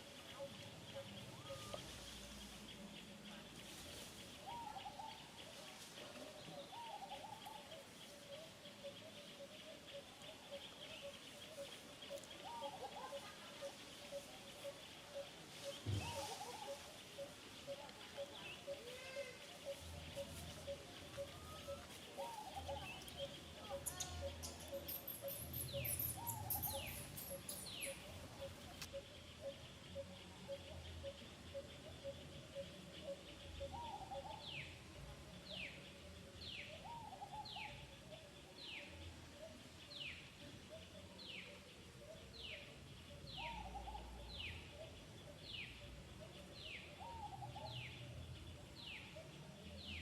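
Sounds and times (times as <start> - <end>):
short wavering bird calls: 0.0 - 2.3, 6.6 - 29.6
high thin bird chirps: 23.2 - 28.6.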